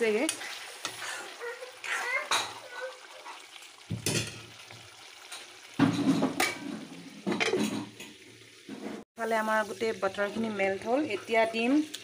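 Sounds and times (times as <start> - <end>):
chicken sizzling in a pan: 0.0 - 12.0
metal spoon scraping a pan: 0.1 - 1.4.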